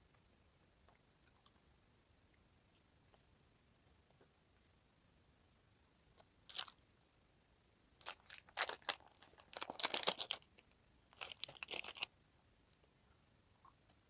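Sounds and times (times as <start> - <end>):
crunchy snack being chewed: 6.5 - 6.8, 8.0 - 10.5, 11.2 - 12.1.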